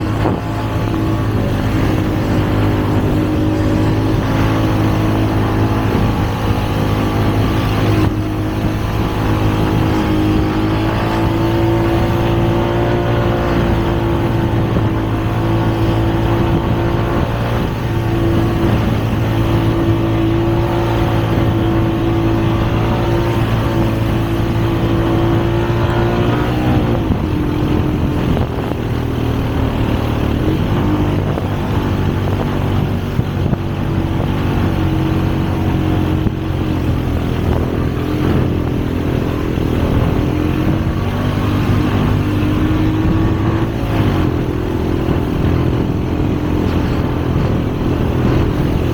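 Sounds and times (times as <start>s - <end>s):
vehicle engine running: 0.0s - 48.9s.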